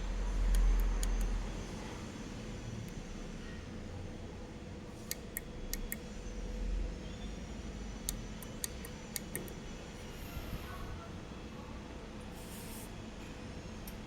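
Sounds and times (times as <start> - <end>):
steady machine hum: 0.0 - 14.0
sharp irregular clicks: 5.1 - 6.0, 8.1 - 9.6.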